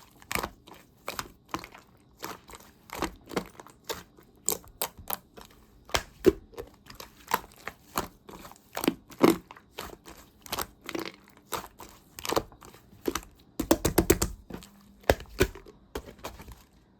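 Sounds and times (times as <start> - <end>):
slime clicking and popping: 4.0 - 8.2, 10.4 - 16.2.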